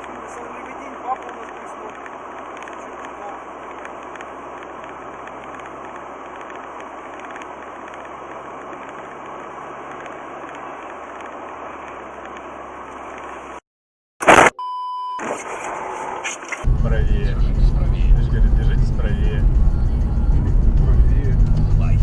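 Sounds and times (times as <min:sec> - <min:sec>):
car cabin engine and road noise: 0:00.0 - 0:13.6, 0:14.2 - 0:22.0
very loud burst: 0:14.2 - 0:14.6.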